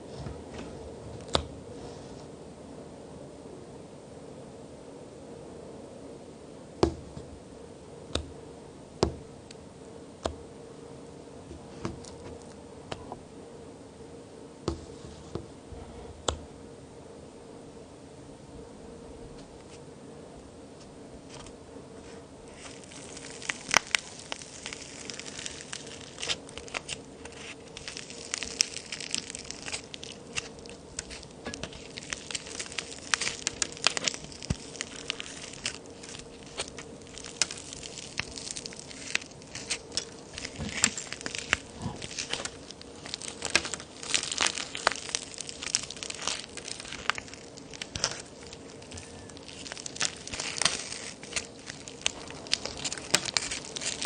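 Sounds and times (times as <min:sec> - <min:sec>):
faint steady hum: 0:00.0 - 0:54.0
clay cookies cracking apart: 0:11.8 - 0:13.0, 0:22.5 - 0:54.0.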